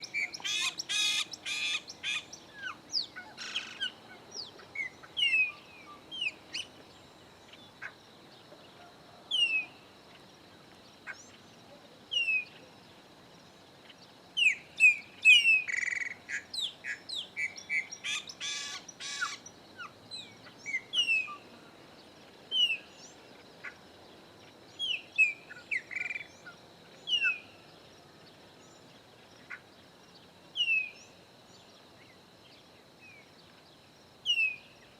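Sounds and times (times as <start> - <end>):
blackbirds whistling: 0.0 - 6.7, 14.4 - 19.5, 20.2 - 21.4.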